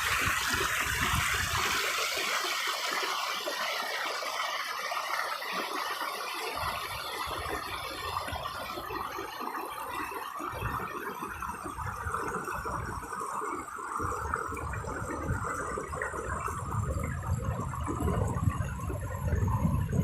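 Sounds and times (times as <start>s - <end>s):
stream water rushing: 0.0s - 11.9s.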